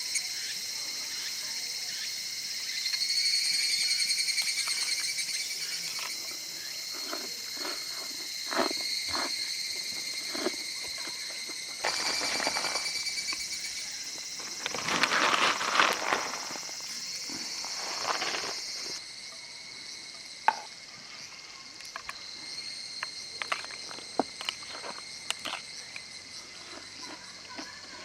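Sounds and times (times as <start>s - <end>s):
cicadas calling: 0.0s - 28.0s
rustling: 6.9s - 13.5s, 14.2s - 19.0s.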